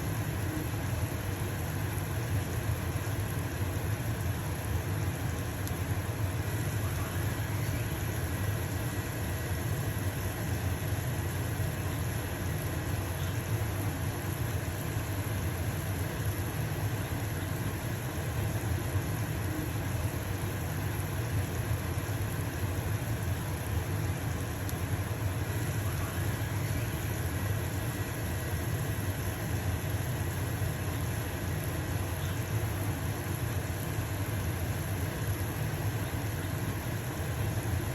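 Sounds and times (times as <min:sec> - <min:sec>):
pancake sizzling in a frying pan: 0:00.0 - 0:37.9
range hood fan humming: 0:00.0 - 0:37.9.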